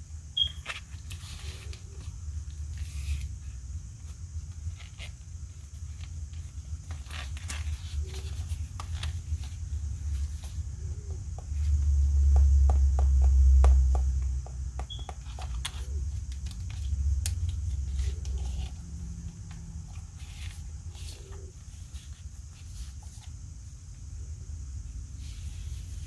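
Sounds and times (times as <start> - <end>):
low rumble of handling noise: 0.0 - 26.0.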